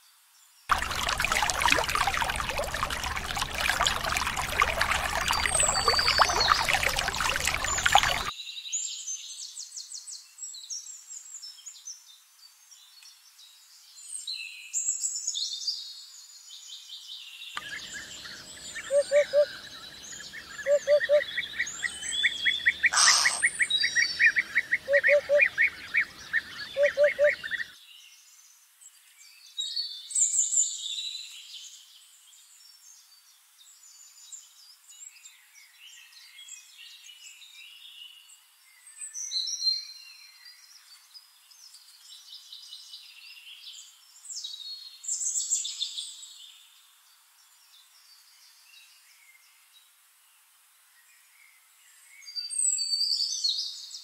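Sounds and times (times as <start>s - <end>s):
birds twittering: 0.7s - 8.3s, 17.6s - 27.7s
songbirds chirping and whistling: 0.7s - 8.3s, 17.6s - 27.8s
hoopoe calling low hollow notes: 20.7s - 21.2s, 24.9s - 25.5s, 26.8s - 27.4s
fast bird trill: 22.8s - 23.8s.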